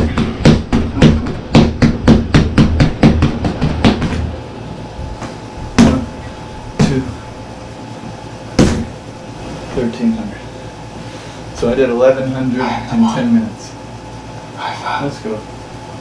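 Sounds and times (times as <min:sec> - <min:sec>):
punches hitting punching bag: 0:00.0 - 0:04.3, 0:05.7 - 0:06.1, 0:08.6 - 0:09.0.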